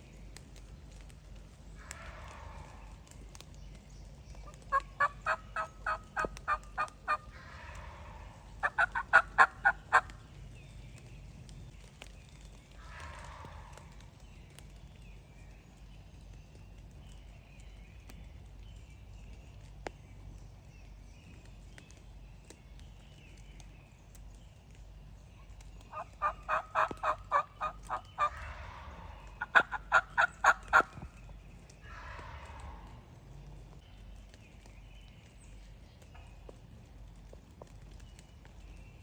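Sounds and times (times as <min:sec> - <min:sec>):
turkey gobbling in the distance: 0:01.8 - 0:03.4, 0:04.4 - 0:10.2, 0:12.8 - 0:14.0, 0:25.8 - 0:33.1
turkey yelps: 0:04.5 - 0:10.1, 0:25.9 - 0:31.1.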